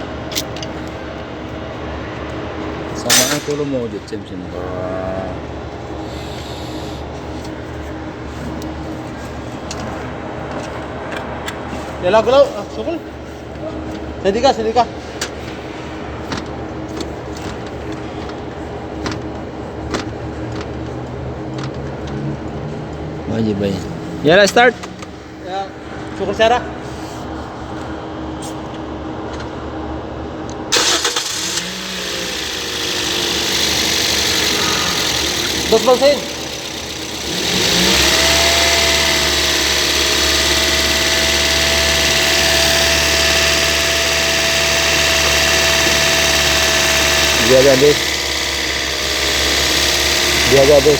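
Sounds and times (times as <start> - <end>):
high alternator whine: 0.0 - 28.1, 28.9 - 50.9
car engine idling: 30.7 - 50.9.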